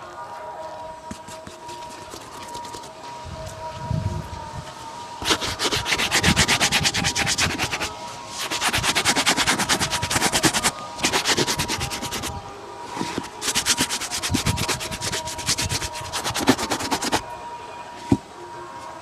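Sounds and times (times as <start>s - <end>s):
brush buffing a shoe: 1.1s - 2.9s, 5.2s - 17.2s.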